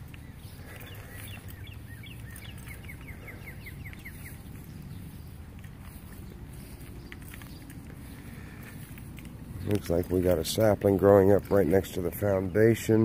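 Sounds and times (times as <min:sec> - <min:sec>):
steady low rumble: 0:00.0 - 0:12.6
small bird chirping: 0:00.0 - 0:12.7.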